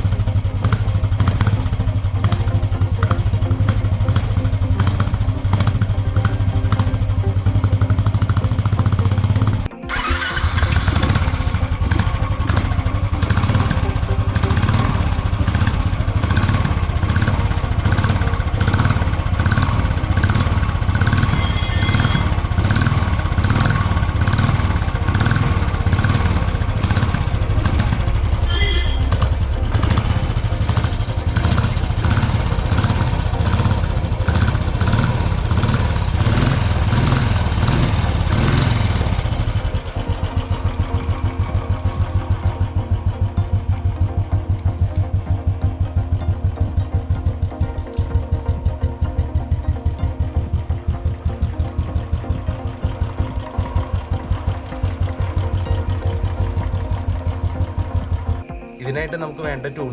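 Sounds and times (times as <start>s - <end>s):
motorcycle engine running steadily: 0.0s - 58.7s.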